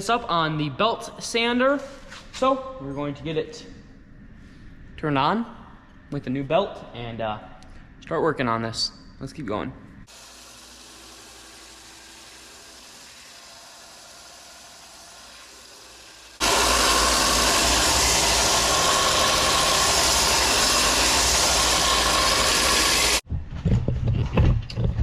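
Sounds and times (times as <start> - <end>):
belt sander humming: 10.1 - 23.2
steel grinding on sander belt: 10.1 - 23.2.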